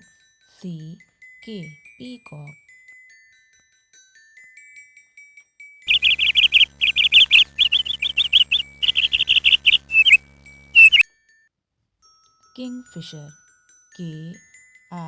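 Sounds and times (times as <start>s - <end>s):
tinkling glockenspiel notes: 0.0s - 5.9s, 10.3s - 15.0s
bird chirping rapidly: 5.9s - 10.2s, 10.8s - 11.0s
faint low hum: 5.9s - 11.0s.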